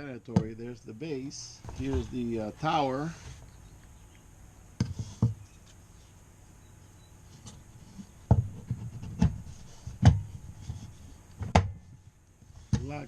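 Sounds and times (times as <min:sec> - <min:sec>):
faint handling: 0:01.4 - 0:06.2.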